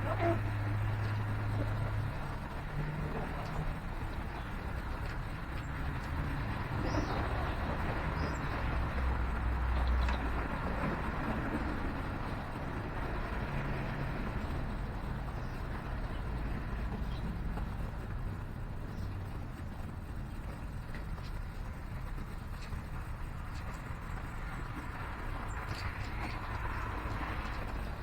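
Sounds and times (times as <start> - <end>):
vehicle passing: 0.0 - 19.5
city traffic rumble: 0.0 - 28.0.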